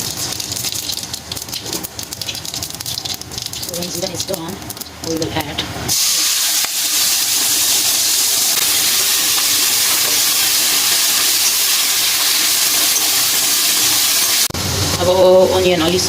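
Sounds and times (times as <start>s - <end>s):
onion sizzling in hot oil: 0.0s - 14.6s.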